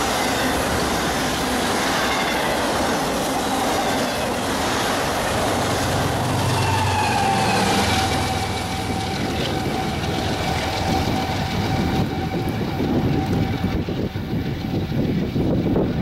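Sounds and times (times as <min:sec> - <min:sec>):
freight train rumble and wheel clatter: 0:00.0 - 0:16.0.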